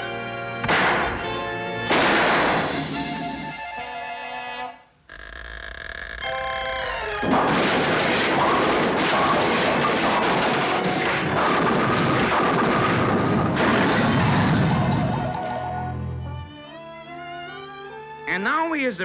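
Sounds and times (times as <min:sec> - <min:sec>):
cartoon explosion blast and rumble: 0:01.9 - 0:03.0, 0:07.2 - 0:15.4
orchestral music: 0:14.7 - 0:19.0.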